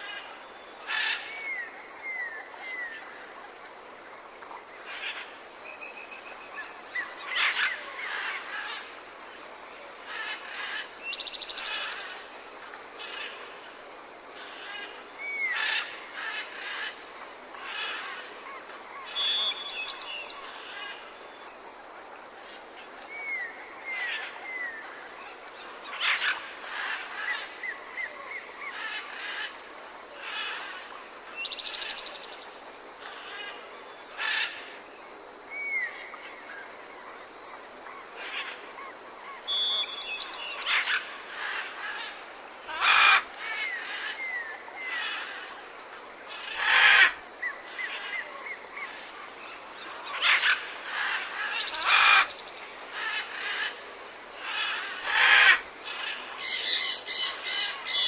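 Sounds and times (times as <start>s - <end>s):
steady background hiss: 0.0s - 58.0s
parrot harsh squawks: 54.5s - 55.6s, 56.4s - 58.0s
parrots chirping and whistling: 56.4s - 58.0s.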